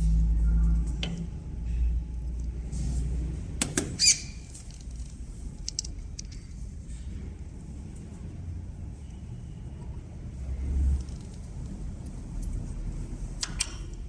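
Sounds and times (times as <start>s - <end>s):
steady low rumble: 0.0s - 3.6s
small metal parts clinking: 4.6s - 6.7s.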